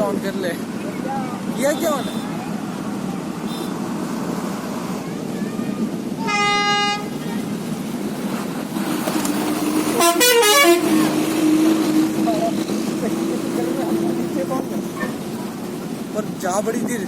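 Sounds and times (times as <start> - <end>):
traffic rumble: 0.0 - 17.0
wind: 0.0 - 17.0
flat-pitched horn honk: 6.2 - 7.1, 9.9 - 11.1
wavering multi-note horn: 10.0 - 11.1.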